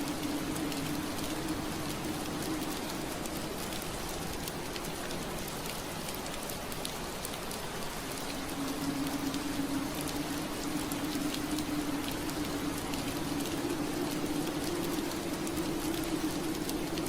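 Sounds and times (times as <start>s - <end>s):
rain on window glass: 0.0s - 17.0s.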